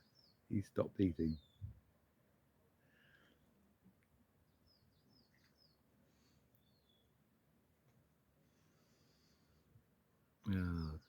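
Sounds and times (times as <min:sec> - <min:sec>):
faint high bird twitter: 0:00.0 - 0:01.8, 0:04.4 - 0:07.2, 0:10.4 - 0:11.0.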